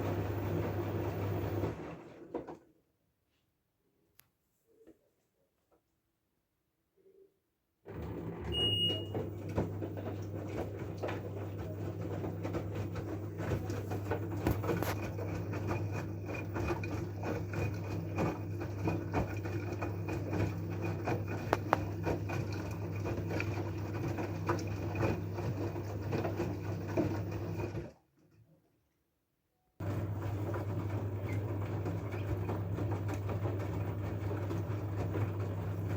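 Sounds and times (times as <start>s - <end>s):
washing machine motor hum: 0.0s - 2.4s, 7.9s - 28.0s, 29.8s - 35.9s.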